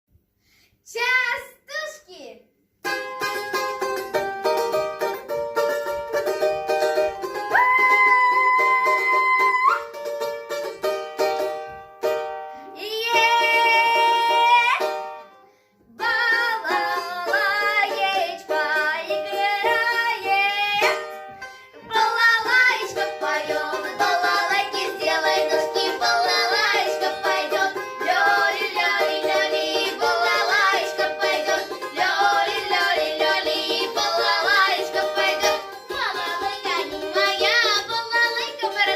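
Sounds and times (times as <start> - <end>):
plucked-string accompaniment: 2.8 - 38.9
voices singing: 15.9 - 20.9, 21.9 - 38.9.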